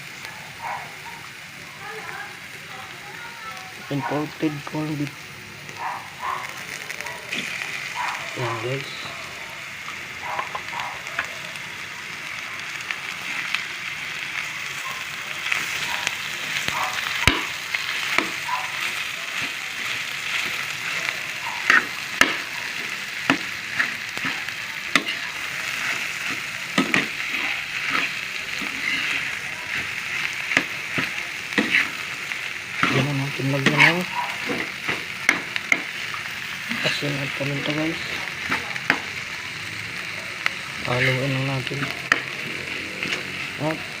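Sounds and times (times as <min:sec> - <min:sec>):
meat sizzling in a frying pan: 0:00.0 - 0:44.0
utensil stirring against pan: 0:15.1 - 0:39.3.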